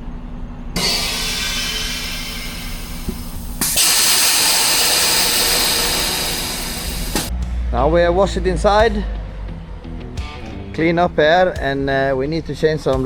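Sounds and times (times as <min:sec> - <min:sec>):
compressed air hissing: 0:00.8 - 0:07.4.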